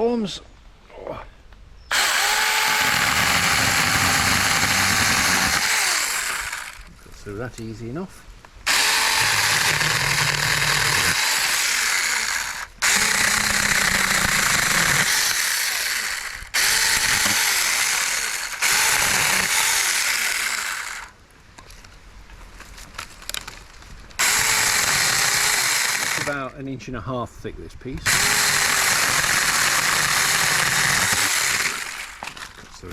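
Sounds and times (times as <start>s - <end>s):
cordless chainsaw cutting branches: 1.9s - 6.9s, 8.7s - 21.1s, 24.2s - 26.4s, 28.0s - 32.6s.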